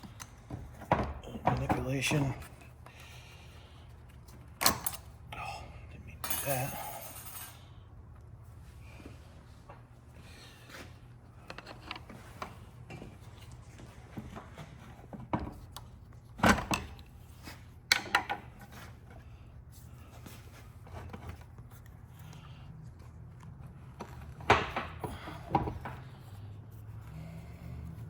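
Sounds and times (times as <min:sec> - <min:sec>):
hand tools clinking on metal: 0:06.2 - 0:07.6.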